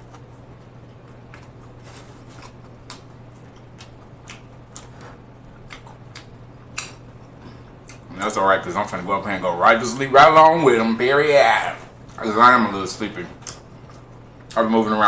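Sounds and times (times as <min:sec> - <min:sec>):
person chewing crunchy food: 0:00.0 - 0:08.1.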